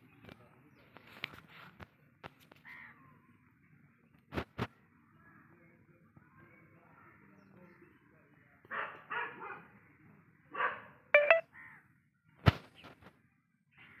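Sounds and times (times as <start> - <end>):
dog barking: 8.7 - 9.7, 10.5 - 11.0.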